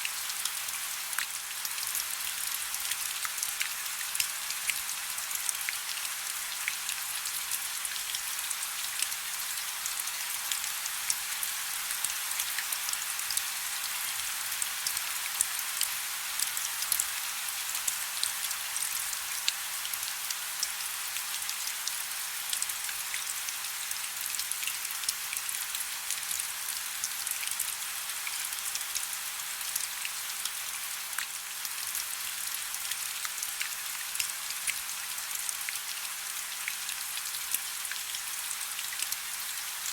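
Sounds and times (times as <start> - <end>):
soft steady rain: 0.0 - 39.9.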